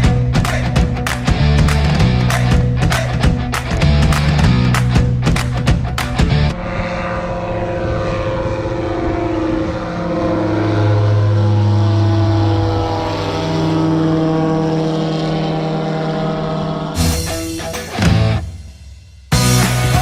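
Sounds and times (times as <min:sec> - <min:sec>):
light aircraft engine droning: 0:04.2 - 0:17.7.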